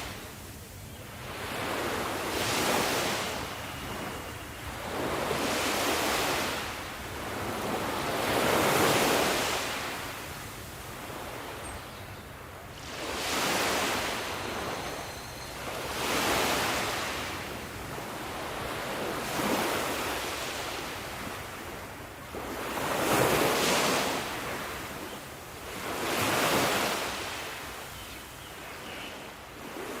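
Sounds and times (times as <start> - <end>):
sea waves breaking: 12.8 - 15.0, 15.7 - 24.8, 25.7 - 27.6.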